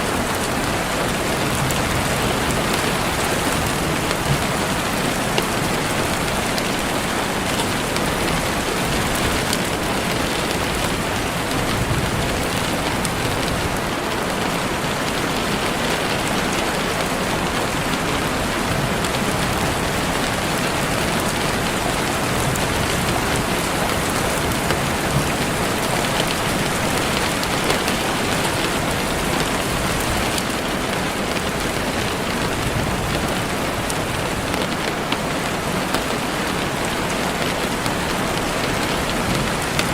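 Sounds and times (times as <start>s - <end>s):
heavy rain on leaves: 0.0s - 39.9s.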